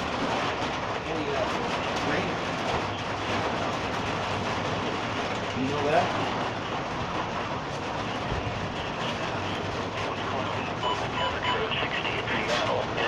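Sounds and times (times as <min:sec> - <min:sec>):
hail and rain hissing: 0:00.0 - 0:13.0.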